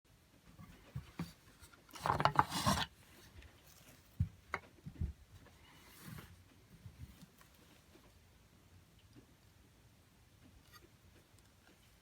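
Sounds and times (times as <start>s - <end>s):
rubbing or scraping: 0.6s - 4.2s, 5.4s - 8.0s.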